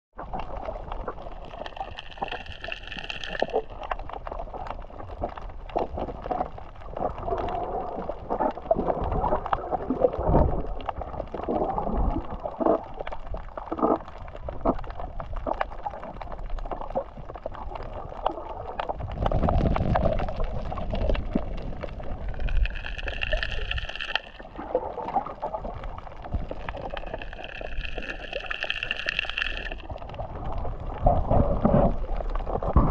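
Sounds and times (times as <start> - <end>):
clicks underwater: 0.2 - 32.9
water sloshing underwater: 0.2 - 32.9
deep rumble: 29.7 - 32.9.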